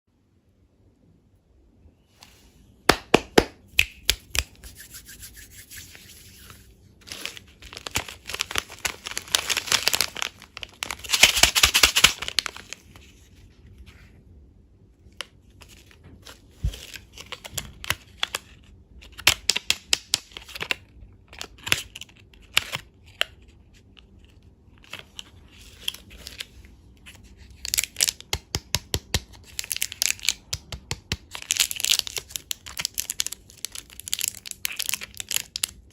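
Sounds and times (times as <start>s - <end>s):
packaging crinkling: 6.4s - 13.1s, 29.4s - 30.6s, 31.2s - 35.9s.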